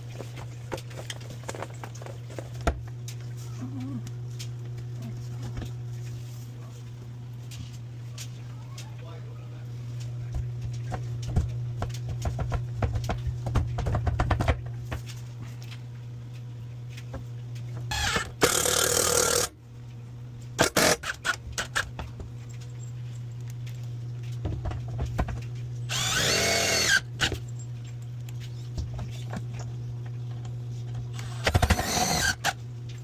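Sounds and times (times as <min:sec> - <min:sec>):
parts rattling and clicking: 0:00.0 - 0:03.2
steady low hum: 0:00.0 - 0:33.0
power drill running: 0:17.9 - 0:19.5, 0:20.6 - 0:21.4, 0:25.9 - 0:27.3, 0:31.1 - 0:32.6.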